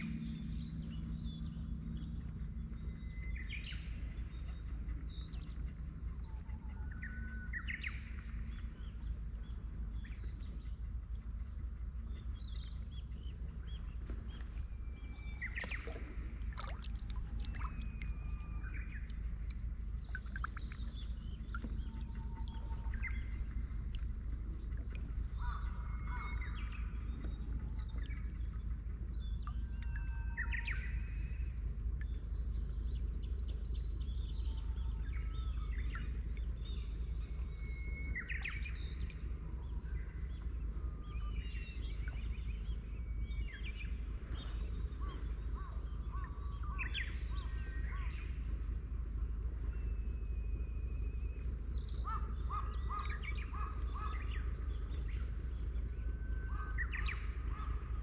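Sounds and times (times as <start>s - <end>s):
birds chirping: 0.0s - 48.8s
steady low rumble: 0.0s - 58.0s.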